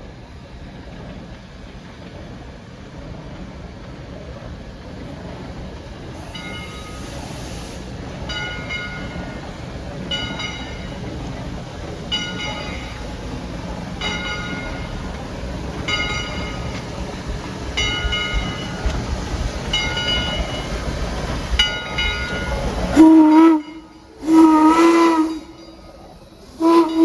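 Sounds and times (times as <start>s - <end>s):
locomotive bell ringing: 6.3s - 7.2s, 8.3s - 9.5s, 10.1s - 11.0s, 12.1s - 13.2s, 13.9s - 15.2s, 15.8s - 19.0s, 19.6s - 27.0s
steam whistle blasts: 22.9s - 25.8s, 26.4s - 27.0s.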